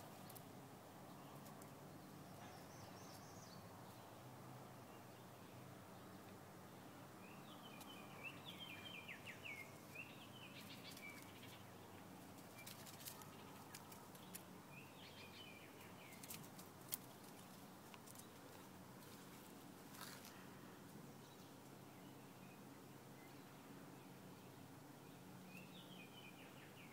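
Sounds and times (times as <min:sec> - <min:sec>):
sharp faint clicks: 0:16.2 - 0:18.6.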